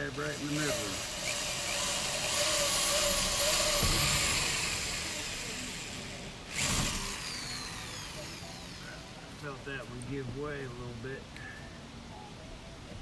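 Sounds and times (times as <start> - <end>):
power drill boring through wood: 0.0 - 9.1.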